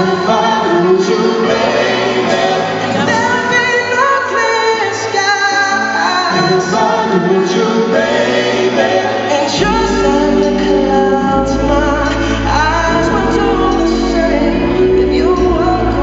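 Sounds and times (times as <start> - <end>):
live band playing pop ballad: 0.0 - 16.0
person singing: 0.0 - 16.0
deep sustained bass notes: 9.6 - 16.0.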